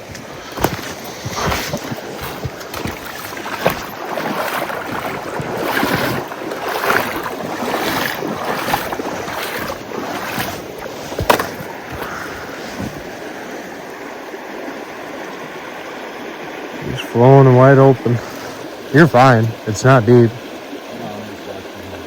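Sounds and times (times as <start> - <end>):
footsteps splashing in water: 0.0 - 13.8
river rushing: 0.0 - 22.0.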